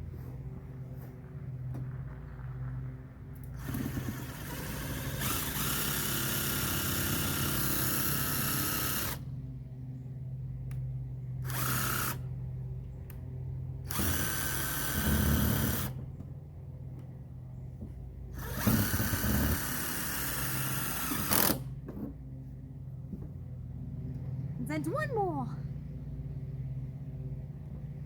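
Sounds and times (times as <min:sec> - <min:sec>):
cordless drill driving screws into metal: 0:03.6 - 0:09.2, 0:18.4 - 0:21.7.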